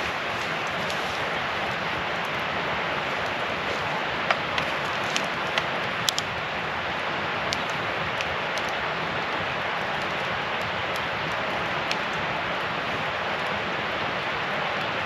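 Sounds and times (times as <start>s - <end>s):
campfire hissing: 0.0s - 15.0s
fire crackles and pops: 0.0s - 15.0s.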